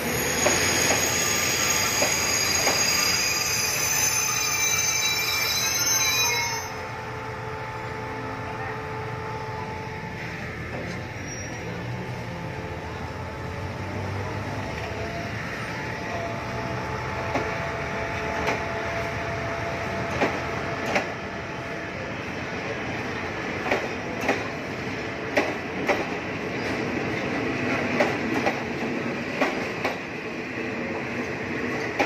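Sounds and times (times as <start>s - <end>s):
high wheel squeal: 0.0s - 7.0s, 10.9s - 11.8s
train coaches rumbling: 0.0s - 32.0s.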